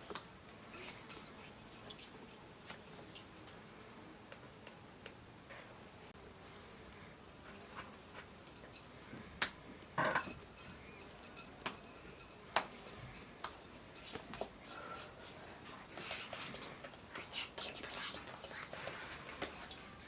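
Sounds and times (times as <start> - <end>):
kitchenware clinks and knocks: 9.9 - 16.2.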